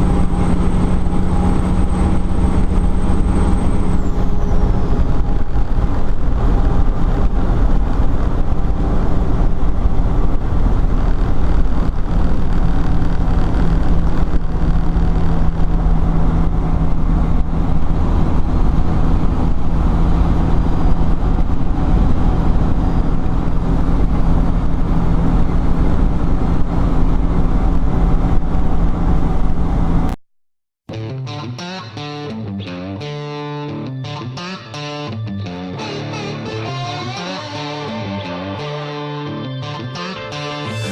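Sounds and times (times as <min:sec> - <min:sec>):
diesel truck engine running: 0:00.0 - 0:30.2
road noise: 0:00.0 - 0:30.2, 0:31.0 - 0:40.9.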